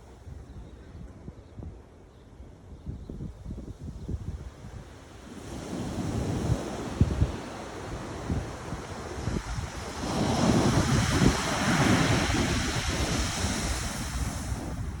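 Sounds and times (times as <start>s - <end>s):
wind buffeting microphone: 0.0s - 15.0s
ocean wave breaking: 5.3s - 15.0s.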